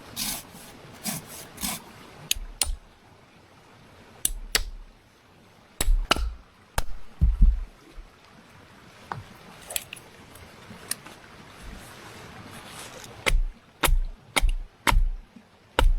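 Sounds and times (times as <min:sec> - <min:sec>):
scraping on wood: 0:00.0 - 0:02.8
sticks clicking and knocking: 0:00.0 - 0:02.9, 0:04.3 - 0:05.0, 0:05.8 - 0:07.6, 0:13.2 - 0:15.2.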